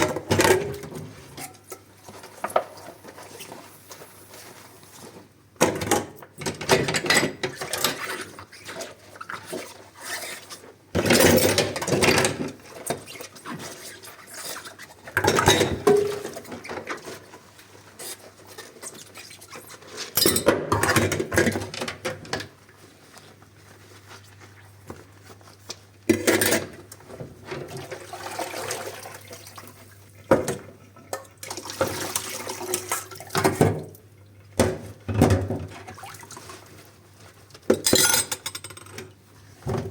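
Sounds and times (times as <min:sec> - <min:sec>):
tap water gushing: 0:27.7 - 0:30.6
dishes clinking: 0:37.8 - 0:39.0.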